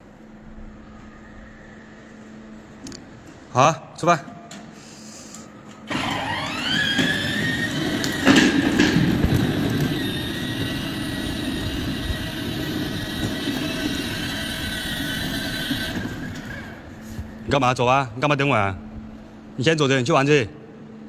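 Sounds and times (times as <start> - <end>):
motorcycle motor whine: 5.8 - 17.9
road and wind rumble: 5.9 - 19.6.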